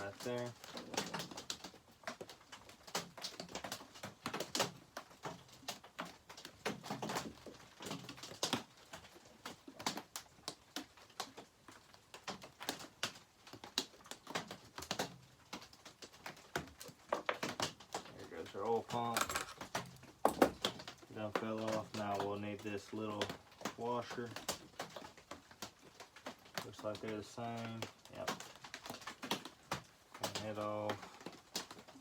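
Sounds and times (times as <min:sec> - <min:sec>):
clinks of hand tools and metal parts: 0:18.9 - 0:20.6.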